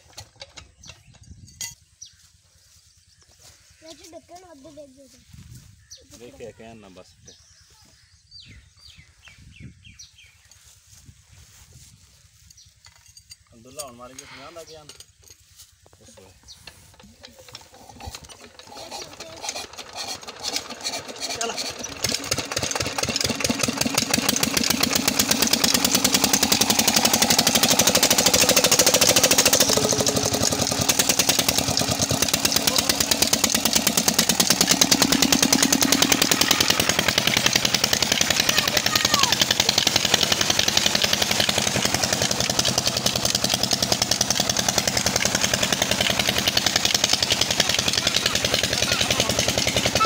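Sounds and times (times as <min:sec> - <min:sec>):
stationary engine chugging: 0:16.1 - 0:50.0.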